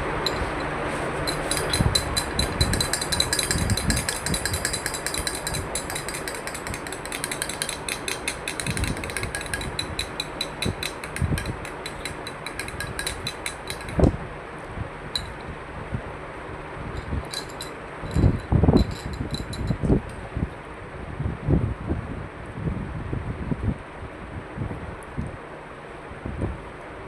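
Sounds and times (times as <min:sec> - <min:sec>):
rapid clicking: 0:00.0 - 0:14.1, 0:15.2 - 0:15.4, 0:17.0 - 0:19.8
steady background noise: 0:00.0 - 0:21.0.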